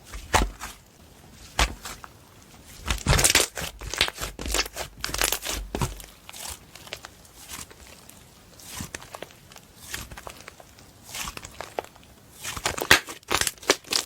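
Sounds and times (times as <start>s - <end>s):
slime squeezed crackling and popping: 2.8s - 8.0s, 8.6s - 14.0s.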